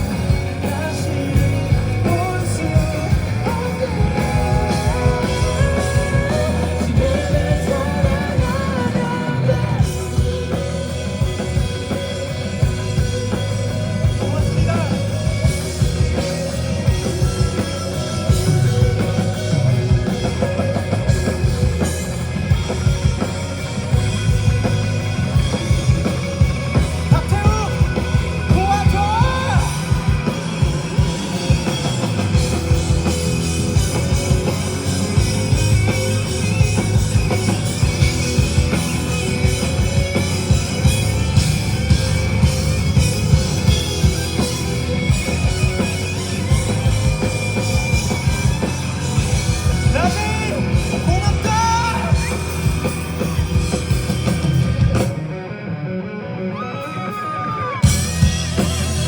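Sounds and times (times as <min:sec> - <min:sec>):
live rock band playing: 0:00.0 - 0:59.0
person singing: 0:00.6 - 0:10.6.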